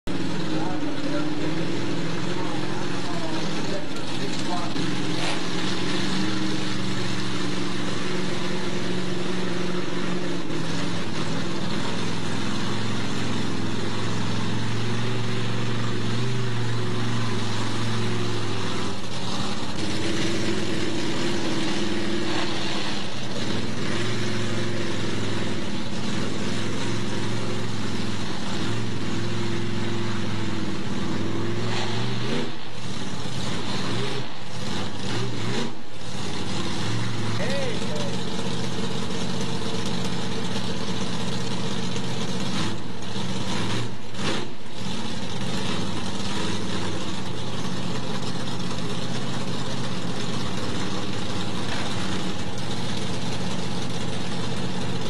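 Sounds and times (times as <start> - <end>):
engine revving up and down: 0.0 - 55.0.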